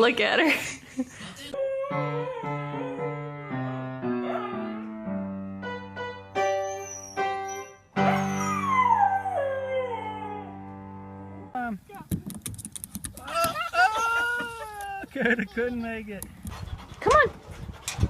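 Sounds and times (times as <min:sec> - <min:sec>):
dog howling: 0:01.6 - 0:04.8, 0:07.0 - 0:10.6.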